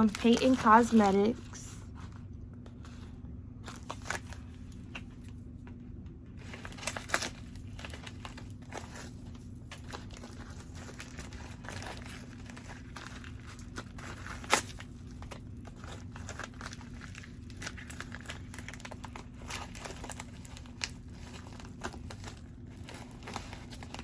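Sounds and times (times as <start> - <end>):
packaging crinkling and rustling: 0.0 - 24.0.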